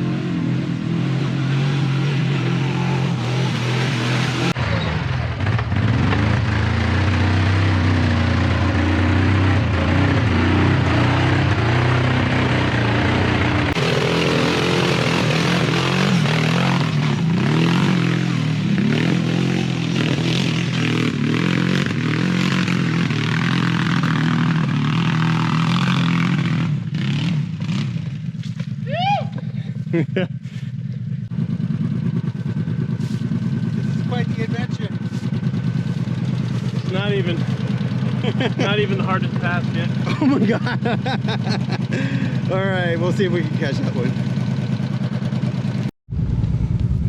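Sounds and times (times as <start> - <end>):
atv engine revving: 0.0 - 45.9.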